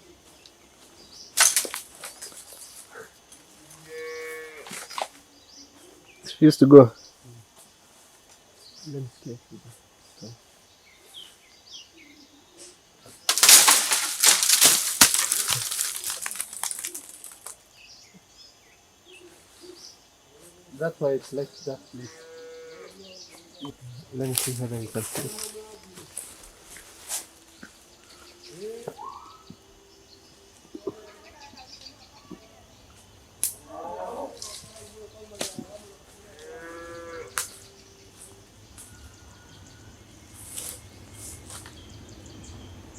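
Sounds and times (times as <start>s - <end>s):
loud rustling crackle with clicks: 13.3s - 17.6s
faint bird chirps: 26.9s - 33.0s
animal calls: 28.3s - 29.6s.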